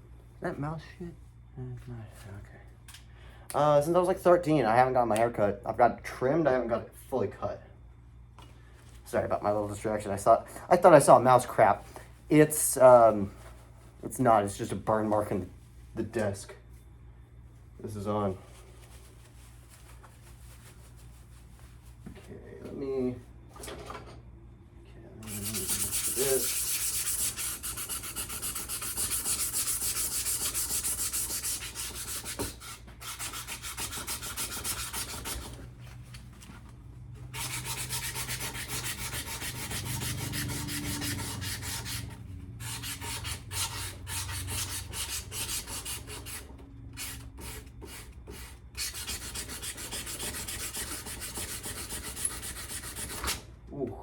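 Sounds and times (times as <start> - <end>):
sandpaper scrubbing metal: 25.2 - 35.6, 37.3 - 46.4, 47.0 - 53.4.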